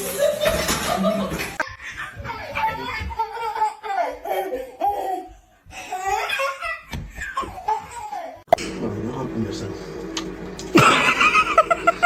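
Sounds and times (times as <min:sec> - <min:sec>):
person laughing hard: 0:10.8 - 0:12.0.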